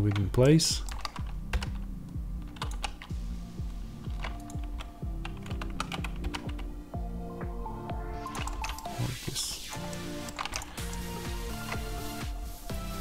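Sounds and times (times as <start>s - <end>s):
keyboard keys clicking: 0.0s - 6.8s, 7.9s - 9.0s, 9.7s - 12.0s
background music: 0.0s - 13.0s.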